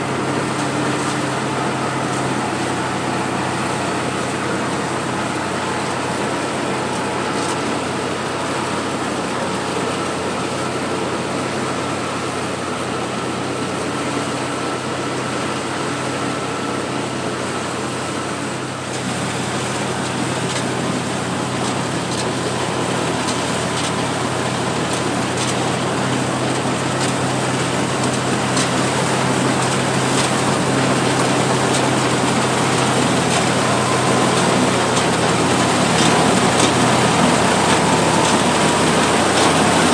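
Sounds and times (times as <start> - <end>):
combine harvester engine and threshing: 0.0 - 39.9.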